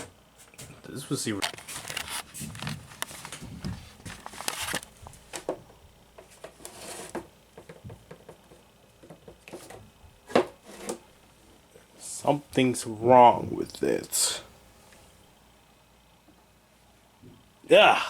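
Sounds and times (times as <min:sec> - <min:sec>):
handling clicks and rustling: 0:01.3 - 0:05.6.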